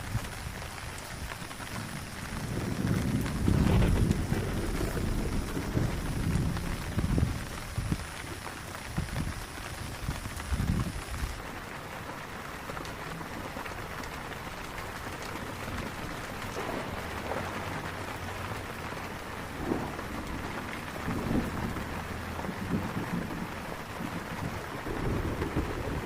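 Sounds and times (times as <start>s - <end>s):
heavy rain falling: 0.0s - 26.0s
loud raindrop splashes: 0.0s - 26.0s
low rumble: 2.4s - 7.8s.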